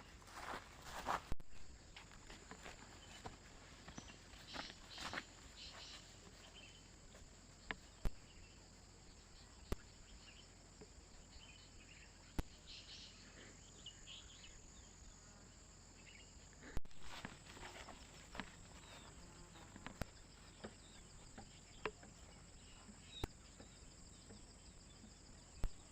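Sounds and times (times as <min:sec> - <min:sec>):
insects droning: 0:00.0 - 0:25.9
rustling: 0:16.9 - 0:20.1.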